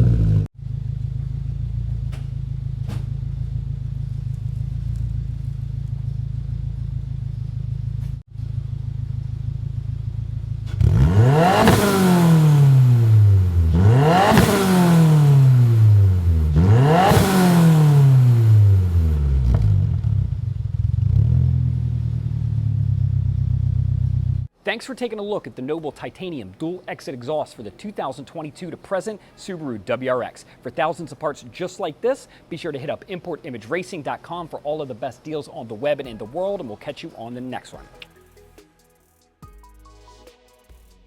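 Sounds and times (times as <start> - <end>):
car engine idling and revving: 0.0 - 24.5.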